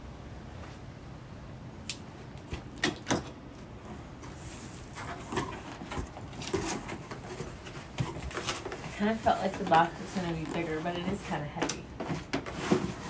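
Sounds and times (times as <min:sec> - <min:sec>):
box and packing rustling: 0:03.6 - 0:13.0.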